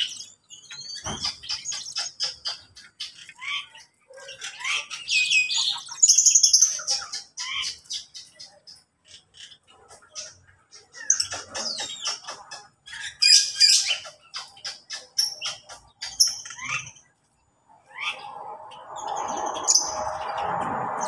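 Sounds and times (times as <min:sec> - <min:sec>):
birds chirping and twittering: 0:00.0 - 0:21.0
steady rushing noise: 0:17.7 - 0:21.0.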